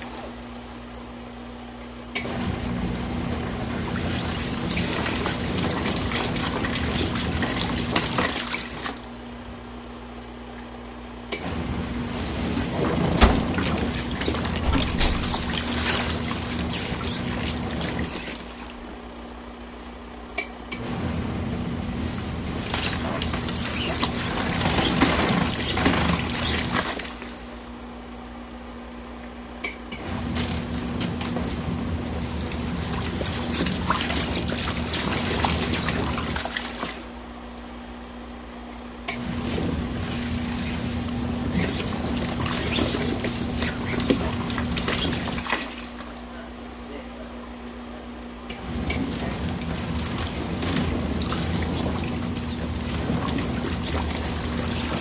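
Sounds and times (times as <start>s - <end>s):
washing machine water sloshing: 0.0s - 0.8s, 2.2s - 9.8s, 11.4s - 19.7s, 20.7s - 28.3s, 30.0s - 37.7s, 39.1s - 46.4s, 48.5s - 55.0s
low motor hum: 0.0s - 55.0s.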